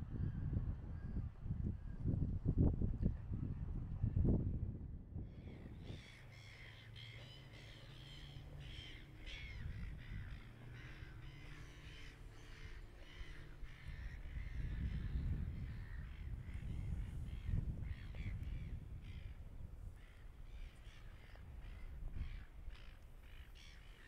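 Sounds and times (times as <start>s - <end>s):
birds calling: 5.4s - 24.0s.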